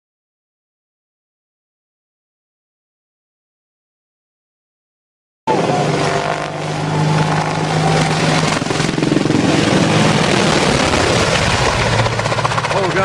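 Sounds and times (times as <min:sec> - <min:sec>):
aircraft engine noise: 0:05.5 - 0:13.0
low hum: 0:05.5 - 0:13.0.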